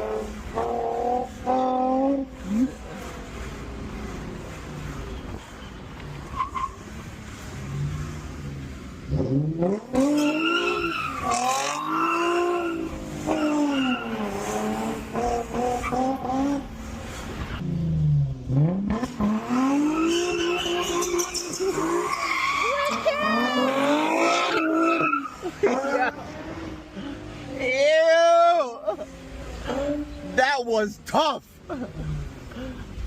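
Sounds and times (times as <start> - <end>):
car engine revving hard: 0.0 - 5.1, 6.8 - 27.6
tyres squealing: 9.9 - 16.6, 19.8 - 26.4.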